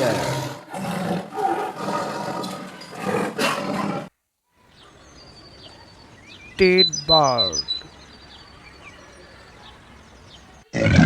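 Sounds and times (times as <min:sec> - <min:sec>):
tiger roaring and growling: 0:00.0 - 0:04.1, 0:10.7 - 0:11.0
high chirps: 0:04.7 - 0:10.6.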